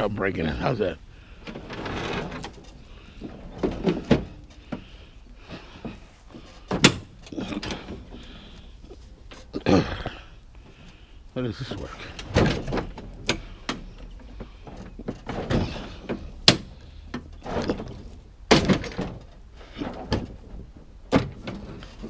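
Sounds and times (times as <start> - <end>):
knocks clunks and rattles: 0.0 - 22.0.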